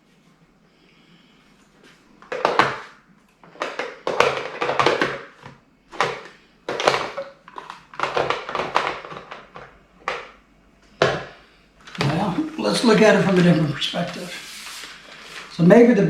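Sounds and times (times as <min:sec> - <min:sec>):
plastic parts knocking and clicking: 0:02.2 - 0:13.6.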